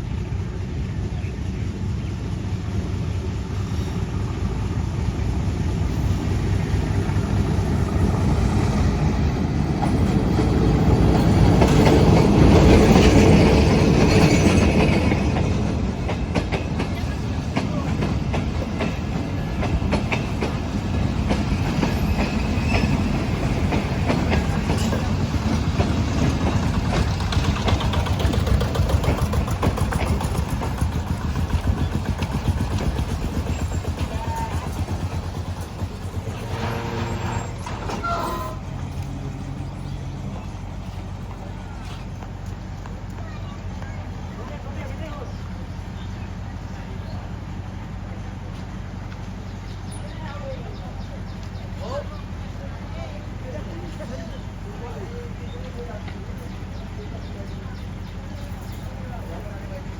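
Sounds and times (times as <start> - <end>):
train rumbling on rails: 0.0 - 59.9
wheels clattering over track: 6.0 - 46.2.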